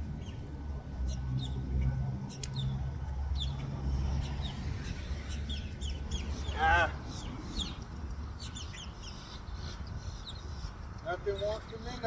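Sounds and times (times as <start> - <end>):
small birds chirping: 2.3 - 2.8, 3.4 - 12.0.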